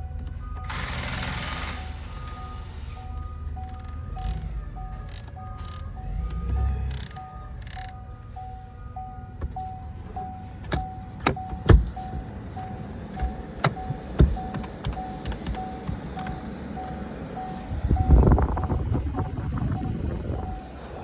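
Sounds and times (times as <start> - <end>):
electronic warning beep: 1.7 - 21.0
sharp knocks and clicks: 13.2 - 16.4.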